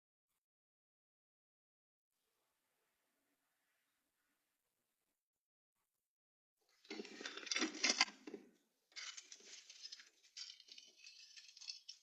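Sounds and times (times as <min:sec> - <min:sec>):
rustling and crinkling handling: 0:06.7 - 0:12.0.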